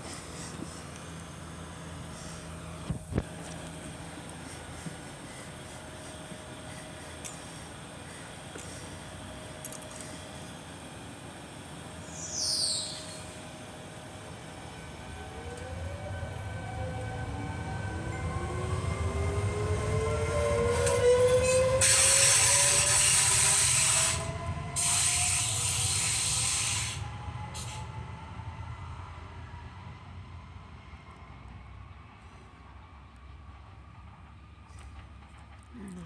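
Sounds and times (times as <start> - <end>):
train rumbling by: 0.0 - 36.0
high falling squeal: 18.0 - 28.2.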